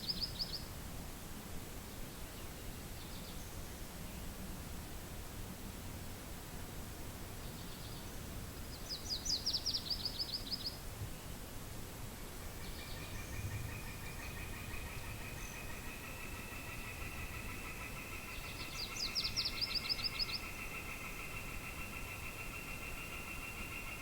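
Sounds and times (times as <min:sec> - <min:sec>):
low rumble of wind: 0:00.0 - 0:24.0.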